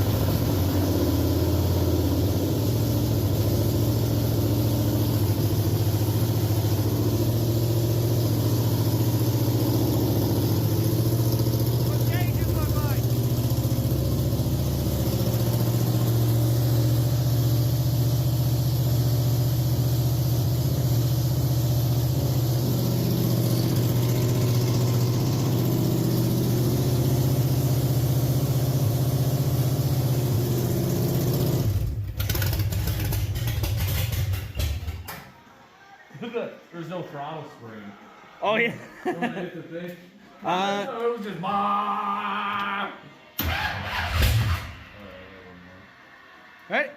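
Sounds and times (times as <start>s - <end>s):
race car engine idling: 0.0s - 34.3s.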